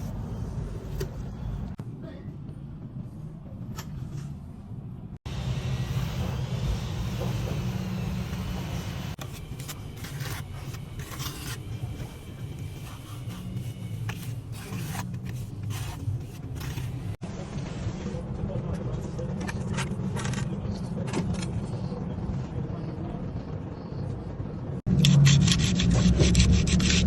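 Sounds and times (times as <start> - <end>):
steady low rumble: 0.0 - 25.4
hand tool scraping mortar: 9.2 - 17.2.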